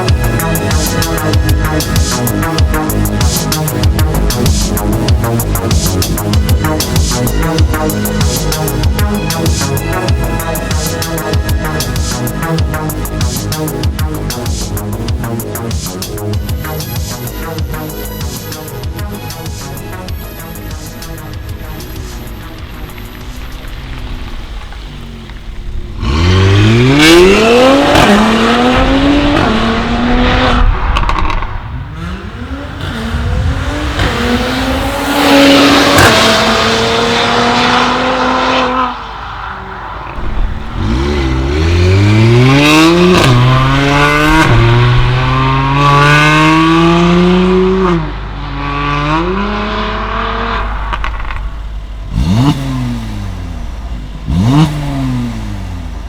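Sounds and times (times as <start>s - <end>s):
car engine accelerating: 0.0s - 56.0s
short sharp engine revs: 21.0s - 39.0s, 40.2s - 48.0s, 48.6s - 56.0s.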